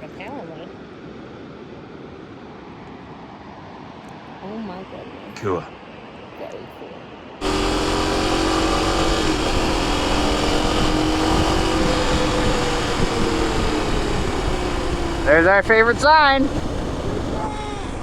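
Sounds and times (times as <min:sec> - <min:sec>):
motorcycle engine cruising: 0:07.4 - 0:18.0
wind rush on microphone: 0:07.4 - 0:18.0.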